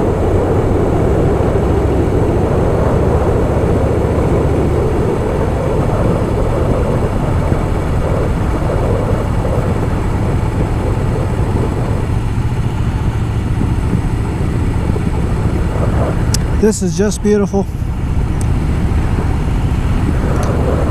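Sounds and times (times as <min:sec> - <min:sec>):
motorcycle engine running: 0:00.0 - 0:20.9
wind rushing on microphone: 0:00.0 - 0:20.9.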